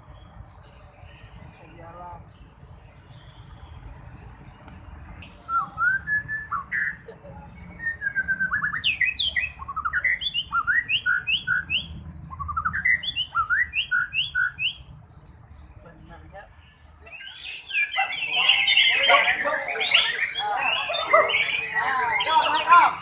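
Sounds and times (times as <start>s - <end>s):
bird singing whistled phrases: 5.4s - 7.0s, 7.6s - 14.8s, 17.1s - 23.0s.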